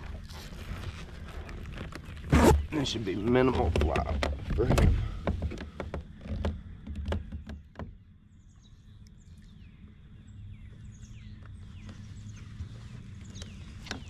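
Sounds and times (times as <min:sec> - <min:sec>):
sharp clicks and knocks: 0:03.5 - 0:08.0
birds chirping with downward slides: 0:08.3 - 0:14.0.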